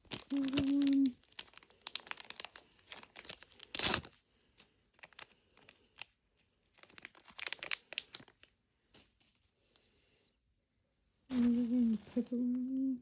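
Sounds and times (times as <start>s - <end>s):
plastic packaging crinkling: 0.0s - 4.2s, 4.9s - 8.5s
plastic packaging tearing: 0.0s - 4.2s, 5.0s - 6.1s, 6.8s - 8.4s.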